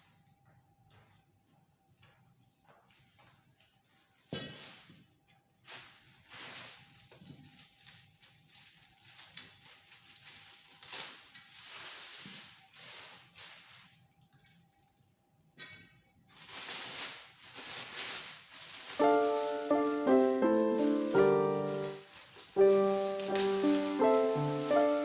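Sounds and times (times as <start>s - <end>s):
rustling and handling noises: 0.9s - 15.0s, 16.3s - 25.0s.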